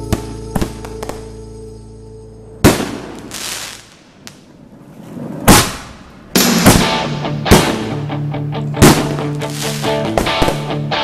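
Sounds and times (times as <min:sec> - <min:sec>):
music: 0:00.0 - 0:02.7, 0:06.4 - 0:11.0
fireworks shells bursting: 0:05.5 - 0:08.2.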